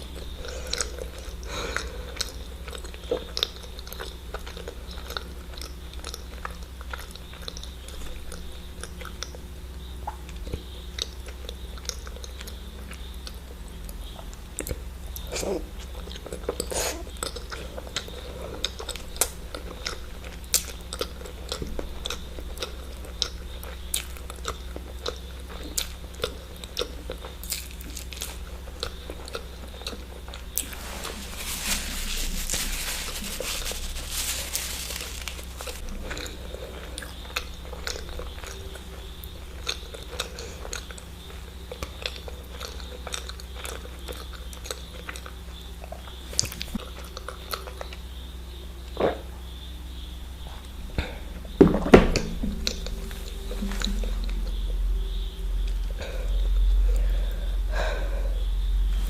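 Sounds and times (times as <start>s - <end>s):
person chewing: 0.0s - 9.4s, 10.0s - 13.4s, 14.0s - 48.0s, 52.6s - 58.0s
steady low hum: 0.0s - 59.0s
rustling: 30.6s - 35.9s.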